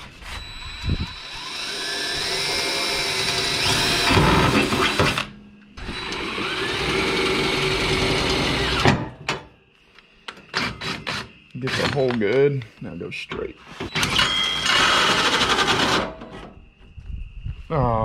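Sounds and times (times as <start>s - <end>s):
electric drill drilling metal: 0.0s - 9.0s, 13.9s - 16.2s.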